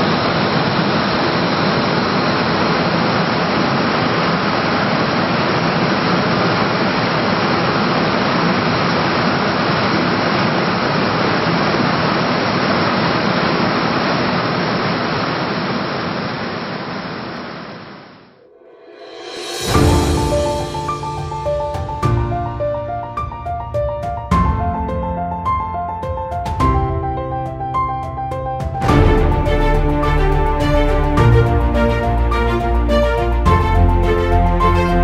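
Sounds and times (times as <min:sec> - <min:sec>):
loud steady rushing noise: 0:00.0 - 0:35.0.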